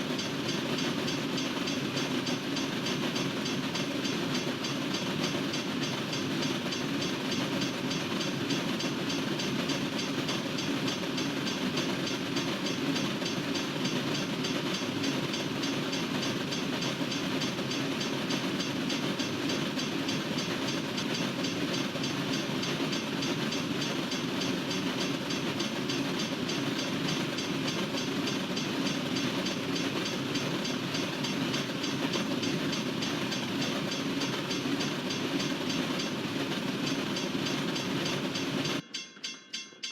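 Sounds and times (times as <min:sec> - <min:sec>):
freight train cars rolling: 0:00.0 - 0:38.9.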